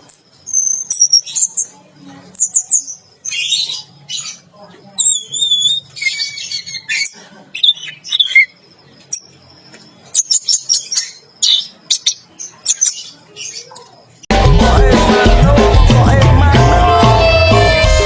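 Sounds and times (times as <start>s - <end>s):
thrush singing: 14.3s - 18.0s.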